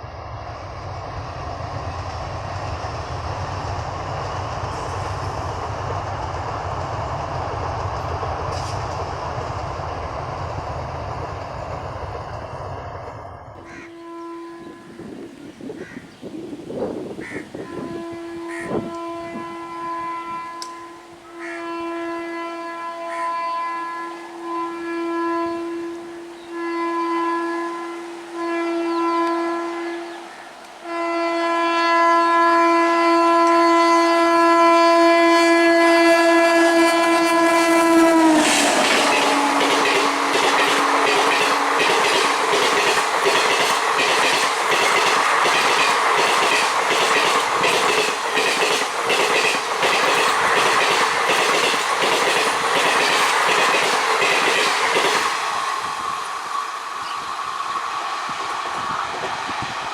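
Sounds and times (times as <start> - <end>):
train wheels clattering: 2.0 - 12.5, 37.9 - 55.5
train horn blasts: 13.6 - 16.0, 17.2 - 55.2.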